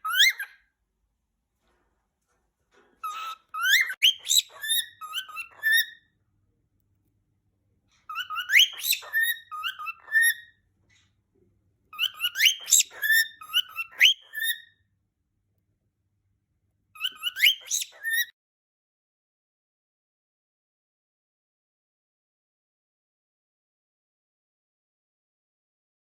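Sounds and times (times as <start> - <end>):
cockatiel whistling: 0.0 - 0.6, 3.0 - 6.0, 8.1 - 10.5, 11.9 - 14.7, 17.0 - 18.3.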